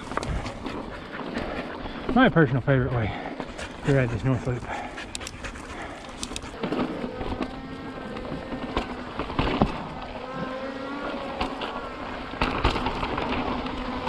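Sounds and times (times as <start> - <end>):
wind and tyre noise: 0.0 - 14.0
bike knocking and rattling: 5.6 - 10.4, 11.2 - 14.0.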